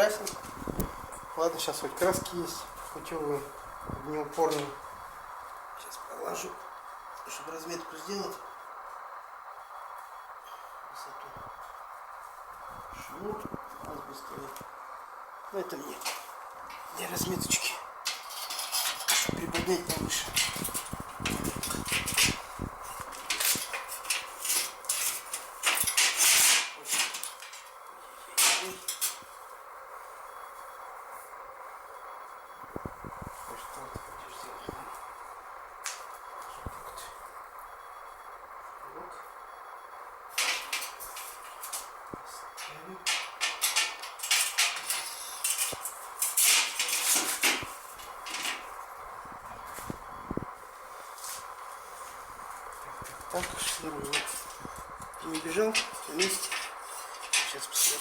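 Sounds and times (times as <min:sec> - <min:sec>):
metal parts clattering and scraping: 0:18.1 - 0:19.3, 0:23.3 - 0:27.7, 0:43.1 - 0:48.6, 0:55.8 - 0:58.0.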